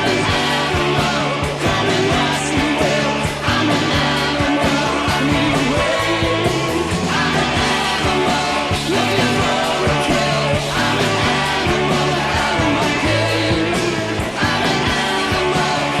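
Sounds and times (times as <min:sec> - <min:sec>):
bass: 0:00.0 - 0:16.0
drum beat: 0:00.0 - 0:16.0
electric guitar: 0:00.0 - 0:16.0
man singing: 0:00.0 - 0:16.0.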